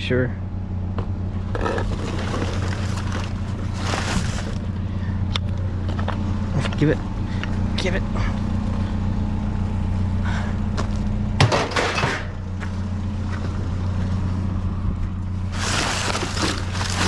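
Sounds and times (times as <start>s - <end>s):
engine idling: 0.0s - 17.0s
rustling through trash: 1.5s - 5.0s, 15.3s - 17.0s.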